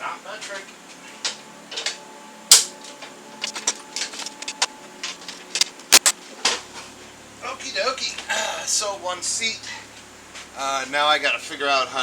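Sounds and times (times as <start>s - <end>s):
sharp knock: 6.0s - 6.2s.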